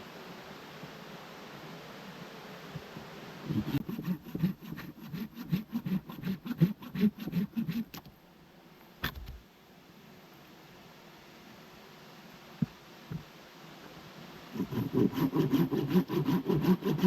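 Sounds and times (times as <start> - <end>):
hand tool working wood: 3.5 - 8.1, 14.6 - 17.0.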